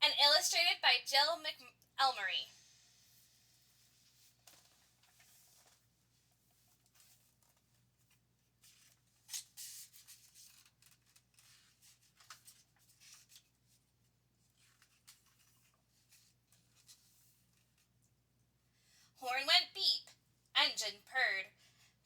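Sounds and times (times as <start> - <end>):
paper rustling: 3.9 - 18.0.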